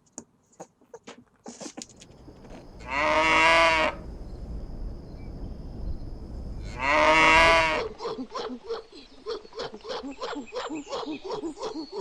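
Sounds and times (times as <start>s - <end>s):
low background rumble: 1.9s - 8.0s
cow mooing: 2.5s - 4.1s, 6.5s - 7.9s.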